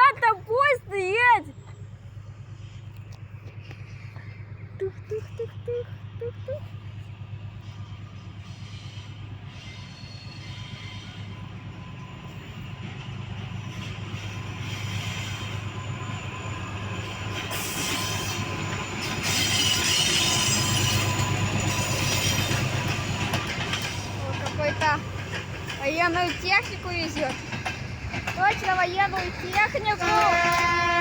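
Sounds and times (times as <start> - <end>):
freight train rumbling on rails: 0.0 - 31.0
high-pitched wheel screech: 13.7 - 24.2.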